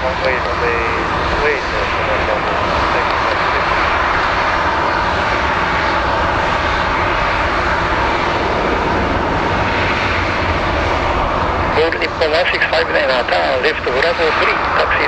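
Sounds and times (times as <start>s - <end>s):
airliner engines running: 0.0s - 15.0s.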